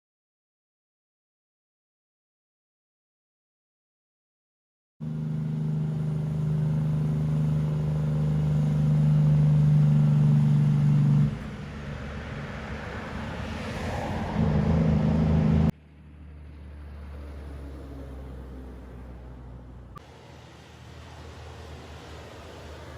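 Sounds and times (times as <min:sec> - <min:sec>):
vehicle engine running: 0:05.0 - 0:13.2, 0:14.4 - 0:22.9.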